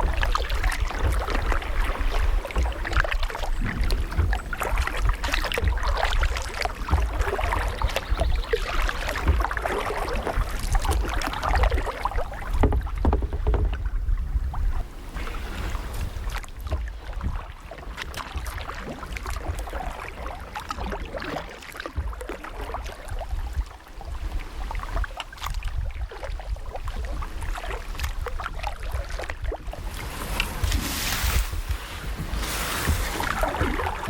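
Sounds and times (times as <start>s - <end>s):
paddle blades splashing: 0.0s - 34.0s
water dripping and lapping: 0.0s - 34.0s
wind rumble on microphone: 0.0s - 34.0s.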